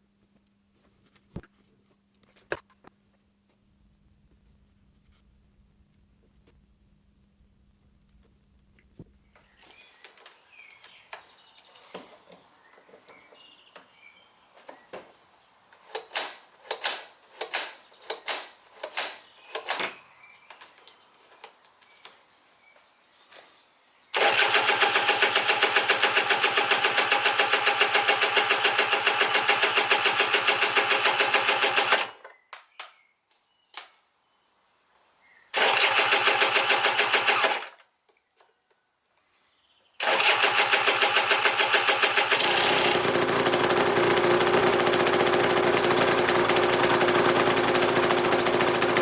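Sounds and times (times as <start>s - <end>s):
two-stroke engine pulsing: 24.2s - 32.1s, 35.6s - 37.7s, 40.0s - 49.0s.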